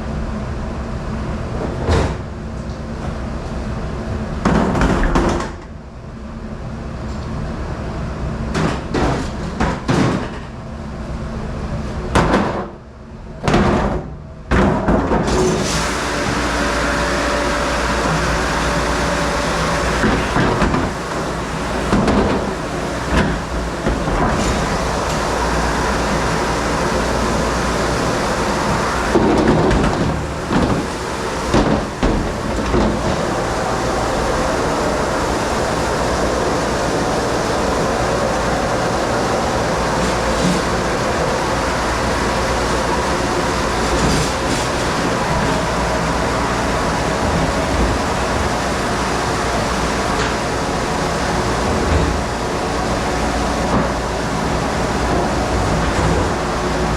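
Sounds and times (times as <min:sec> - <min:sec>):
dish room machine noise: 0:13.4 - 0:56.9.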